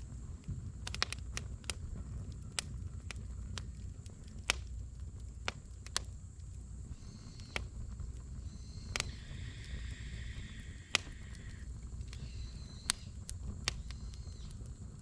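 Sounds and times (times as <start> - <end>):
sharp fire pops: 0.0 - 9.9, 10.8 - 15.0
campfire crackling: 0.0 - 15.0
low rumble of flame: 0.0 - 15.0
faint high hiss: 6.1 - 13.2.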